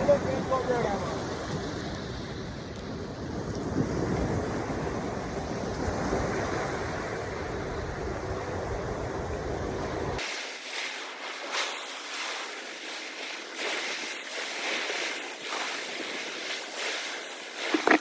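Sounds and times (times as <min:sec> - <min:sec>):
wind buffeting microphone: 0:00.0 - 0:10.2
waves washing: 0:00.0 - 0:18.0.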